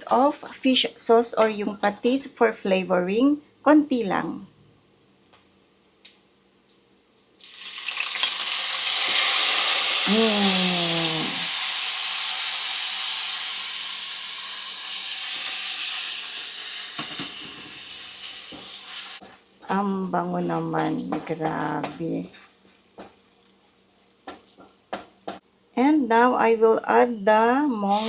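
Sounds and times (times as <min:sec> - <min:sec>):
food sizzling in a pan: 0:07.4 - 0:19.6
person exclaiming: 0:10.1 - 0:11.5.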